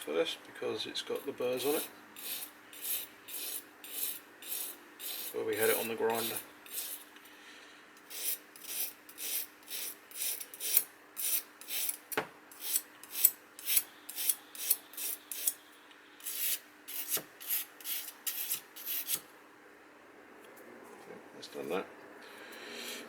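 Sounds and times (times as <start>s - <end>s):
knife scraping on whetstone: 1.5s - 7.1s, 8.1s - 15.6s, 16.2s - 19.3s.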